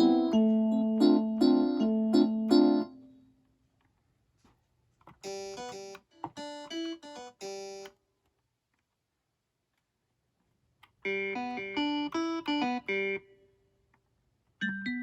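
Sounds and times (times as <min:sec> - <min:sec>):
electric piano chords: 0:00.0 - 0:03.1, 0:05.2 - 0:07.9, 0:11.1 - 0:13.3, 0:14.6 - 0:15.0.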